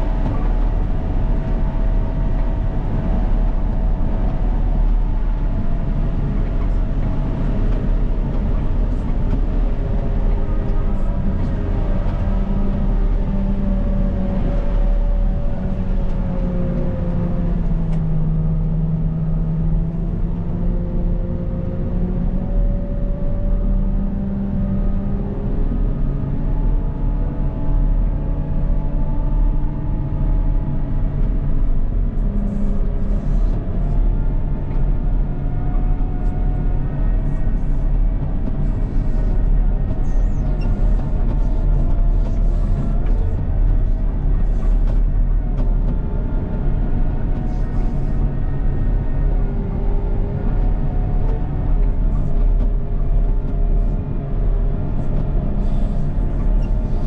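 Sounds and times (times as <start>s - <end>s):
wheel loader diesel engine: 25.1s - 57.0s.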